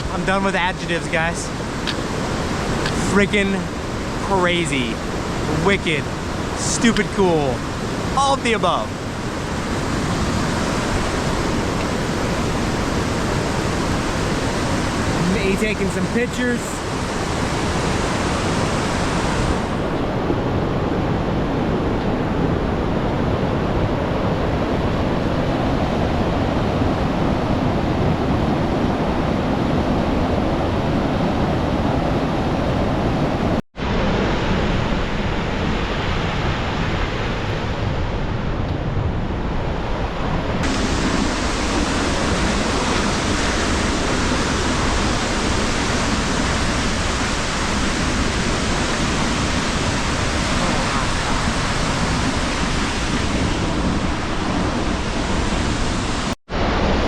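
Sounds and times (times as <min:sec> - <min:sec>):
waterfall roaring: 0:00.0 - 0:19.9, 0:40.6 - 0:56.8.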